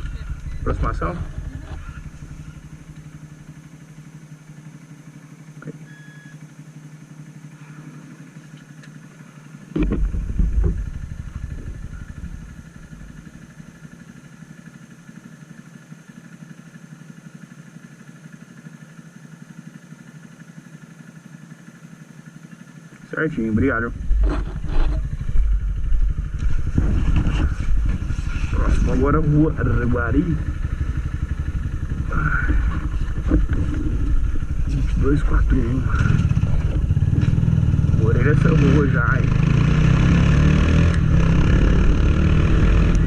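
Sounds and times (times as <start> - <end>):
engine idling: 0.0 - 43.0
loud low bump and rumble: 9.7 - 13.6, 23.5 - 38.6.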